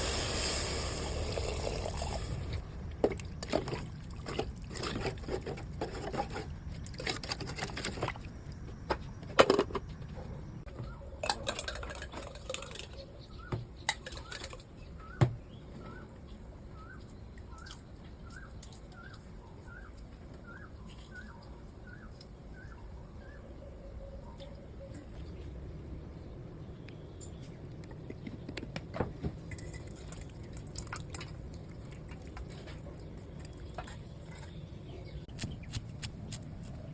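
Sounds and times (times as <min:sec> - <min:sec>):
utensils and cookware clattering: 0:11.2 - 0:13.0.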